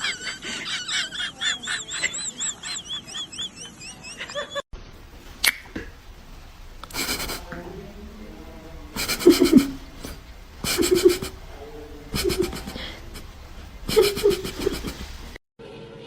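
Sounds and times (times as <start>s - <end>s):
person laughing: 0.0s - 4.6s, 6.9s - 7.5s, 9.0s - 15.4s.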